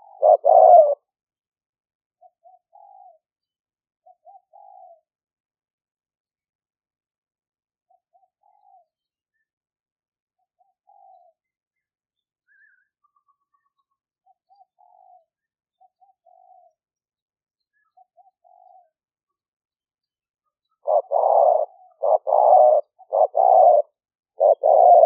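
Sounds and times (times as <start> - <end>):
dove cooing: 0.0 - 1.1, 2.2 - 3.2, 4.0 - 5.0, 7.9 - 8.9, 14.2 - 16.8, 17.9 - 19.0, 20.8 - 25.0
small birds chirping: 10.4 - 25.0.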